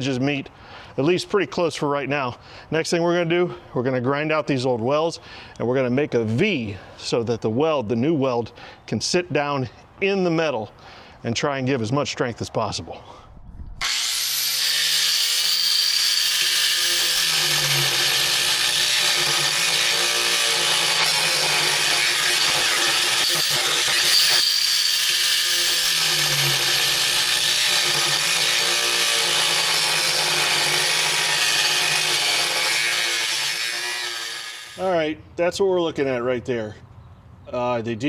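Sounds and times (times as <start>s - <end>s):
angle grinder grinding steel: 13.8s - 34.9s.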